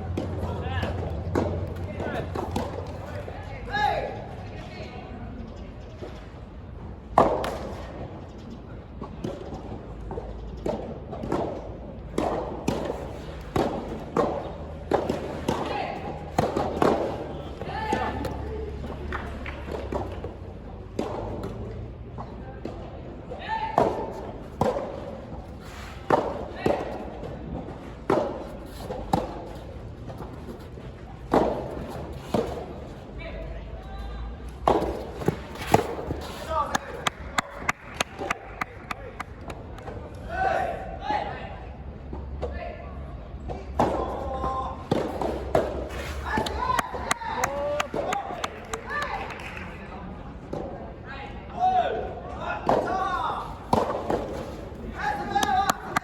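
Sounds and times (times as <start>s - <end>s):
tennis ball hits and bounces: 0.0s - 3.3s, 9.0s - 22.8s, 23.7s - 33.0s, 34.5s - 40.0s, 43.5s - 48.4s, 52.6s - 56.0s.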